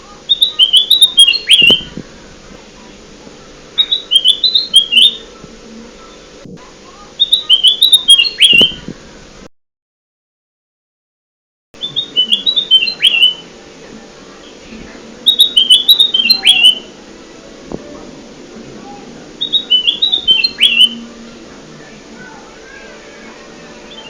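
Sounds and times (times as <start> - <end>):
faint steady hum: 0.0 - 9.5, 11.8 - 24.0
bulbul whistled song: 0.3 - 2.0, 3.8 - 5.4, 7.2 - 8.9, 11.8 - 13.5, 15.2 - 17.0, 19.4 - 21.2, 23.8 - 24.0.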